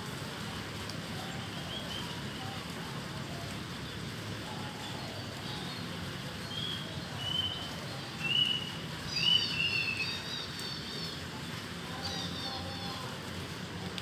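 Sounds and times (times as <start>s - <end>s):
steady rain: 0.0s - 14.0s
songbird singing: 1.2s - 13.1s.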